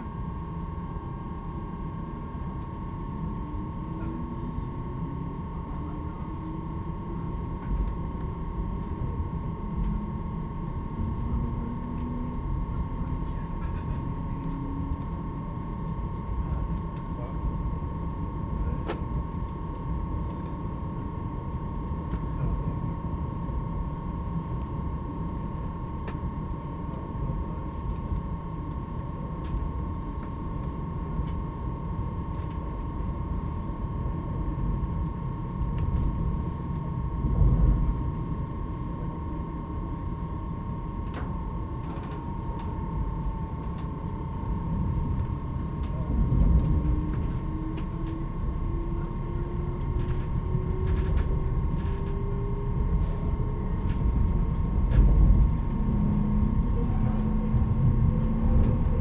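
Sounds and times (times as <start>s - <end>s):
steady high whine: 0.0s - 59.0s.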